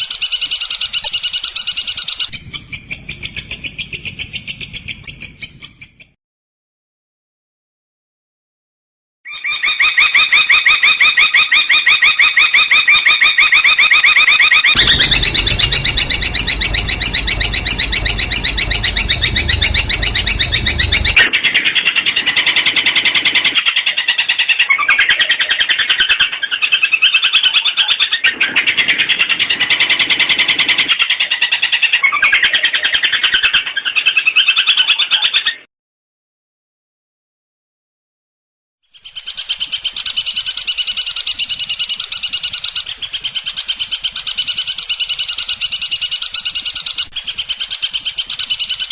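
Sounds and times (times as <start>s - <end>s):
bird chattering song: 0.0s - 6.1s
low rumble: 14.8s - 21.3s.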